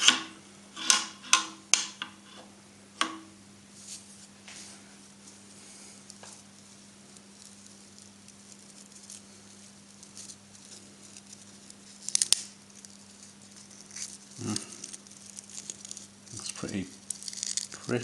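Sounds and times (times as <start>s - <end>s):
steady low hum: 0.0s - 18.0s
scraping and handling of cable: 3.8s - 18.0s.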